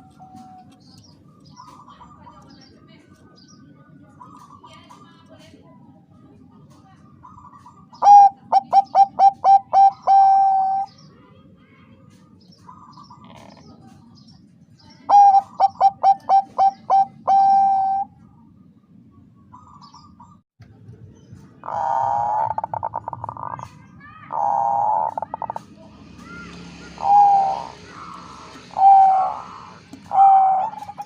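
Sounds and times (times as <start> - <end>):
dove cooing: 7.2 - 10.9, 15.1 - 18.2, 21.6 - 23.7, 24.3 - 31.0.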